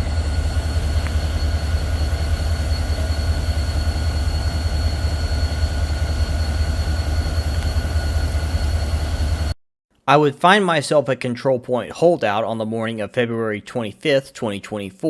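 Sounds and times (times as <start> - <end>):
locomotives idling rumble: 0.0 - 9.5
thin steady whine: 0.0 - 9.6.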